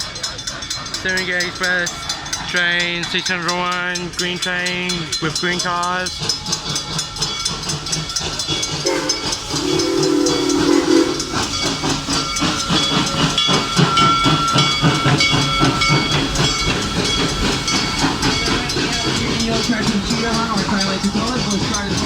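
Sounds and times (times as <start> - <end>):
train wheels knocking over rails: 4.9 - 22.0
high squealing tones: 8.9 - 11.8.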